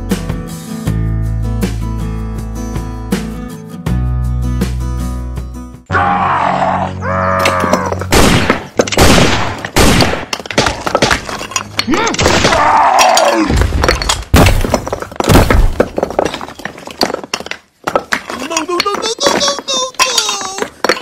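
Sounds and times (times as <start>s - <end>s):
cartoon-like vocal cries: 5.9s - 7.9s
loud crashing breaking impacts: 8.0s - 17.6s.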